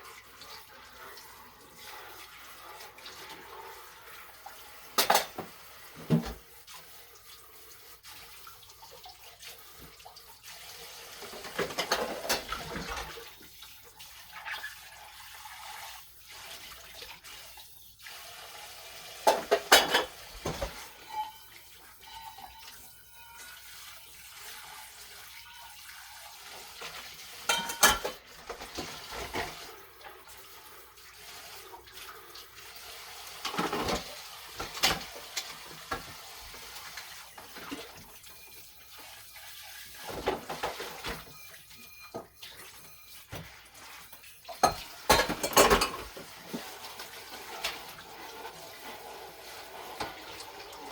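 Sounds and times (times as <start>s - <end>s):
tap water running into sink: 0.0s - 50.9s
dishes clattering: 5.0s - 6.4s, 11.3s - 13.1s, 19.2s - 23.5s, 27.5s - 29.6s, 33.4s - 36.0s, 44.5s - 46.7s.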